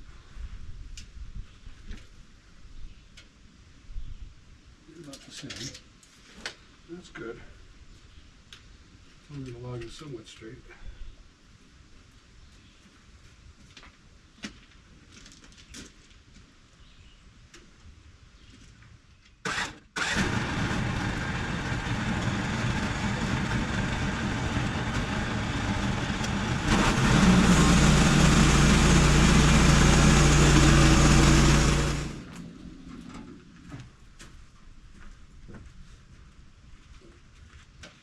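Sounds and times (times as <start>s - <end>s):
electric winch running: 19.5s - 32.4s.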